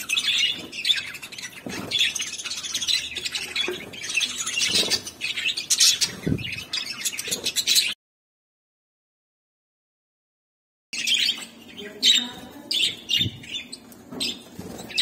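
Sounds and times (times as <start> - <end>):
budgies chattering and chirping: 0.0 - 8.0, 11.0 - 15.0.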